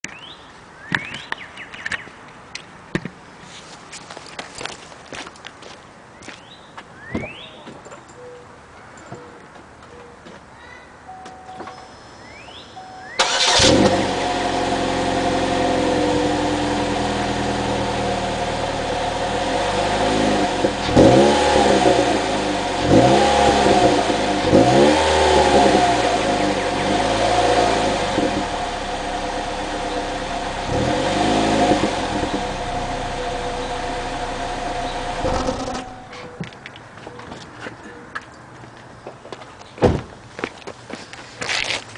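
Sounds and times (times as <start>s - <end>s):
car engine starting: 13.1s - 36.2s
car engine idling and revving: 13.2s - 36.2s.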